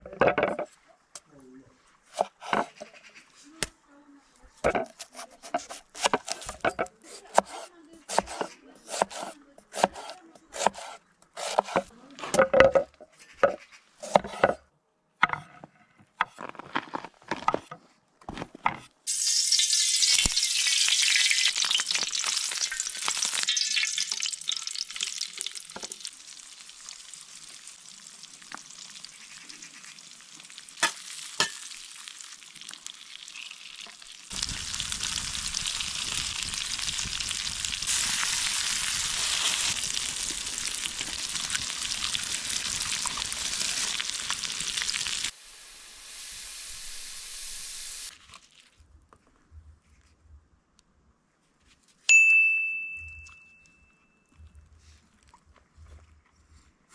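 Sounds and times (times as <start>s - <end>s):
sausage sizzling in a pan: 19.1s - 48.2s.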